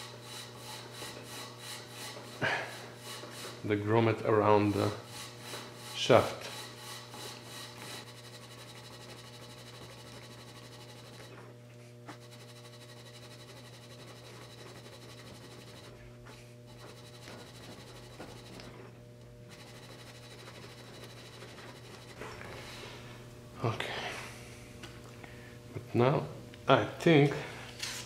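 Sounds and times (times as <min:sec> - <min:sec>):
steady low hum: 0:00.0 - 0:28.0
rubber scratchy rubbing on metal: 0:04.7 - 0:11.3.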